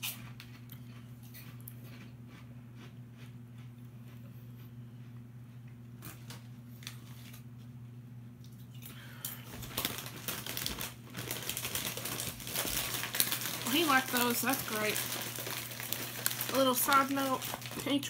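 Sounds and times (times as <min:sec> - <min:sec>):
low steady hum: 0:00.0 - 0:18.0
snack bag crinkling: 0:08.6 - 0:18.0.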